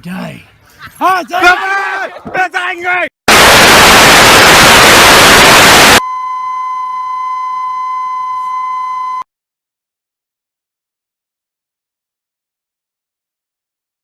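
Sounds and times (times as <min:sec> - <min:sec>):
tv static hiss: 0:03.3 - 0:06.0.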